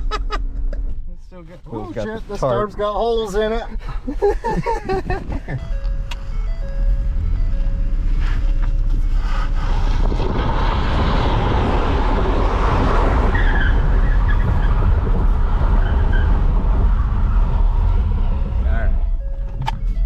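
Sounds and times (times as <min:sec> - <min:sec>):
car engine at high revs: 0:04.8 - 0:18.9
tyres spinning and squealing: 0:09.4 - 0:19.4.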